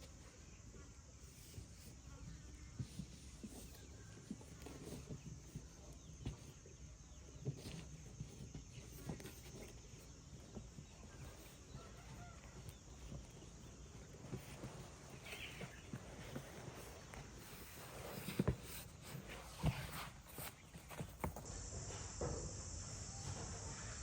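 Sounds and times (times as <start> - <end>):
rustling: 0.0 - 24.0
faint chicken calls: 3.5 - 17.5, 21.4 - 24.0.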